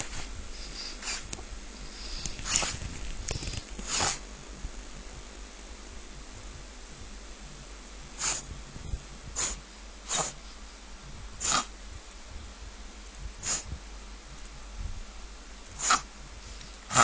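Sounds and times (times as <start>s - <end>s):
dog reverse-sneezing: 0.2s - 1.3s, 3.8s - 4.2s, 8.2s - 8.5s, 9.4s - 10.4s, 11.4s - 11.7s, 13.4s - 13.7s, 15.8s - 16.1s.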